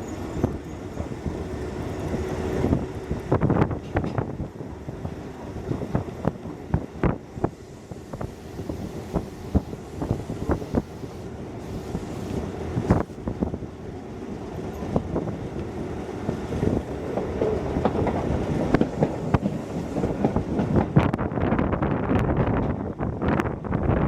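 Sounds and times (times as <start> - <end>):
electric train running: 0.0 - 13.6.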